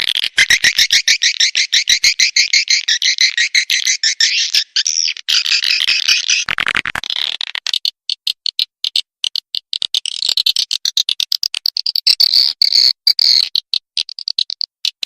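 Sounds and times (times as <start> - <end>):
swiftlets twittering: 0.3 - 6.5
rattle of clicks: 5.7 - 15.0.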